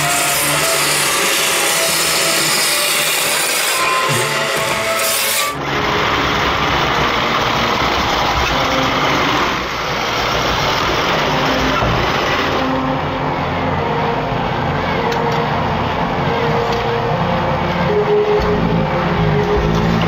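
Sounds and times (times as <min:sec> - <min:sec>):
robot vacuum motor and brushes: 0:00.0 - 0:05.6
rubbing and scraping: 0:00.0 - 0:05.6.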